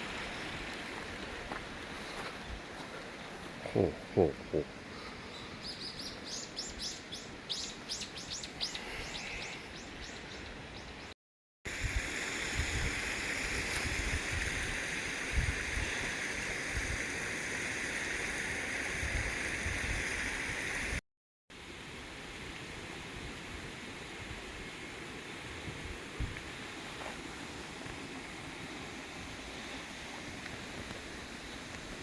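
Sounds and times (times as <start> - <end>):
small bird chirping: 5.3 - 10.9
steady rushing hiss: 11.7 - 21.0, 21.6 - 32.0.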